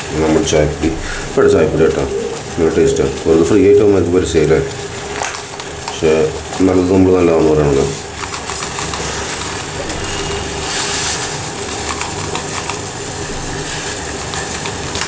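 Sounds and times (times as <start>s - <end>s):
tea boiling in a pan: 0.0s - 15.0s.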